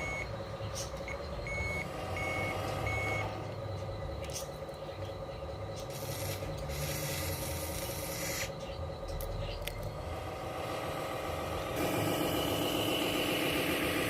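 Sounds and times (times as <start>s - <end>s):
reversing beeper: 0.0s - 6.9s
mechanical whine: 0.0s - 14.0s.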